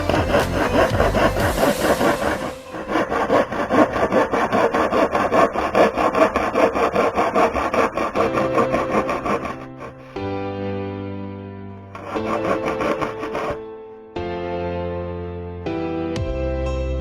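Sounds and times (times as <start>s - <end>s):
rasp on wood: 0.0s - 10.2s, 11.9s - 13.6s.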